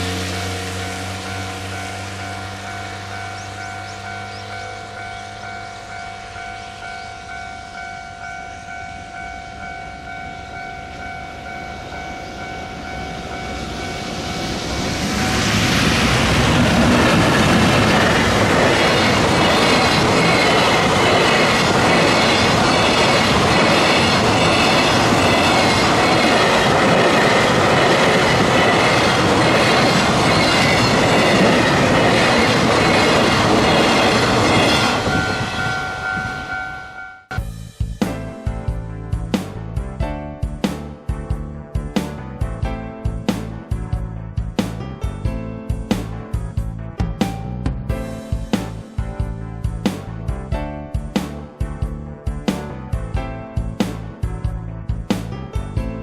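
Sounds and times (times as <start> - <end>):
freight train passing: 0.0 - 37.5.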